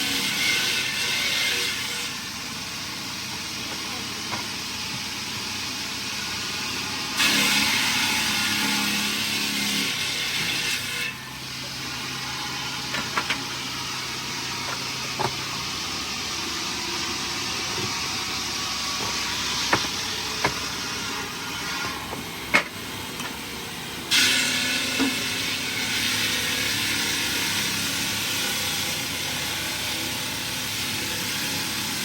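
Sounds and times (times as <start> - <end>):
heavy engine running: 14.0 - 24.1
sharp knocks: 19.0 - 20.7.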